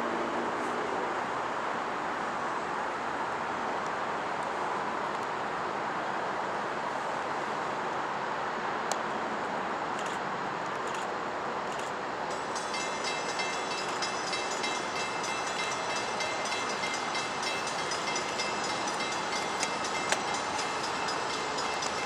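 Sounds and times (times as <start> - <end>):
freight train rumbling: 11.6 - 22.0
high steady ringing: 12.3 - 22.0.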